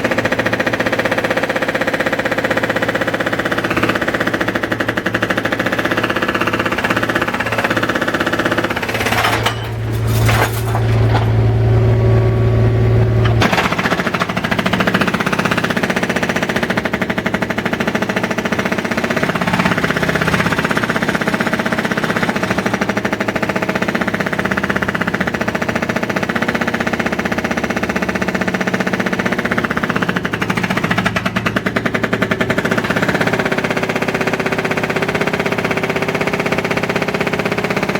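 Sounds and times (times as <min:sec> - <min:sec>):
jackhammer hammering: 0:00.0 - 0:37.9.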